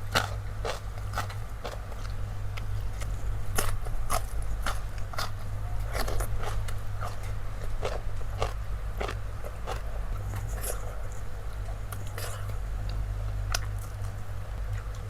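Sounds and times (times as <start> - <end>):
crunchy biting and chewing: 0.0 - 15.0
steady low hum: 0.0 - 15.0.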